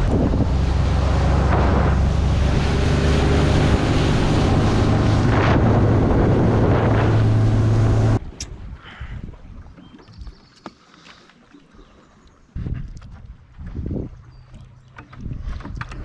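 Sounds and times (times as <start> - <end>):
outboard motor running: 0.0 - 8.4, 13.6 - 16.0
wind buffeting microphone: 0.0 - 9.7, 12.5 - 16.0
water rushing past hull: 0.0 - 10.5.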